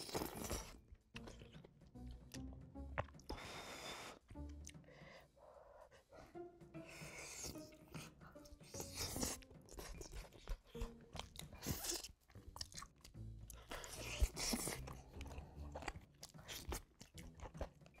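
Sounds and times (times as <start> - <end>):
chewing and biting chicken: 0.0 - 2.4, 8.7 - 18.0.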